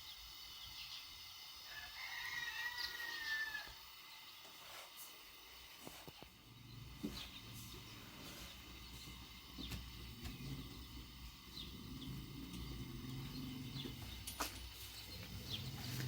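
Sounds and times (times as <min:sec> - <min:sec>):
small birds chirping: 0:00.0 - 0:04.9, 0:05.9 - 0:16.0
low hum: 0:06.2 - 0:16.0.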